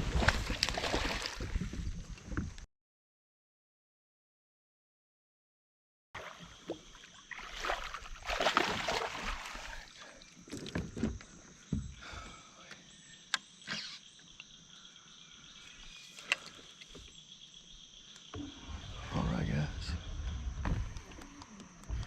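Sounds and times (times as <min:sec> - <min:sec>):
water swishing against hull: 0:06.2 - 0:11.2.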